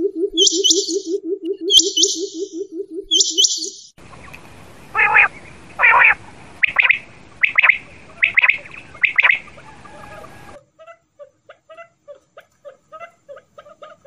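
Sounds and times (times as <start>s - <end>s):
quail calling: 0.0s - 4.3s, 4.9s - 14.0s
steady hiss: 4.0s - 10.6s.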